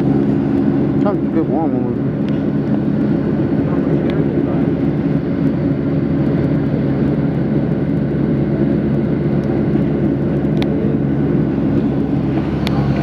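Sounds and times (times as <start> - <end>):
jet airliner cabin noise: 0.0 - 13.0.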